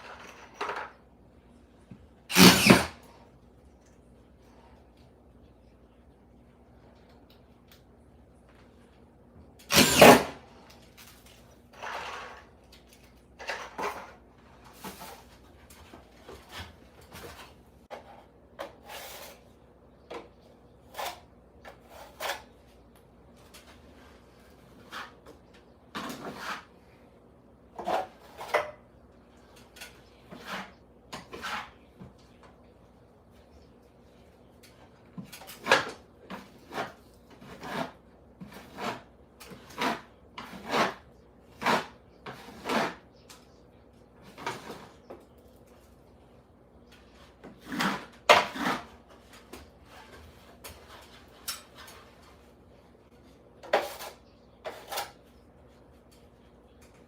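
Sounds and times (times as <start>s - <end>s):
scraping of tools and materials: 2.3s - 3.3s, 9.6s - 27.1s, 27.7s - 32.2s, 46.8s - 56.2s.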